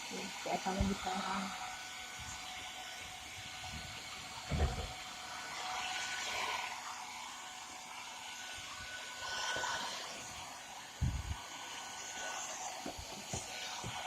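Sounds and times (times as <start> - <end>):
hair dryer blowing: 0.0 - 14.0.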